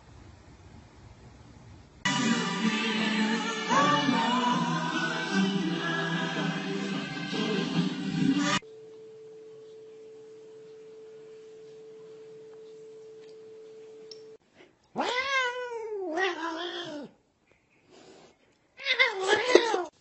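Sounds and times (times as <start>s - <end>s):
faint steady hum: 0.0s - 15.0s
cat meowing: 15.0s - 17.1s, 18.8s - 19.9s.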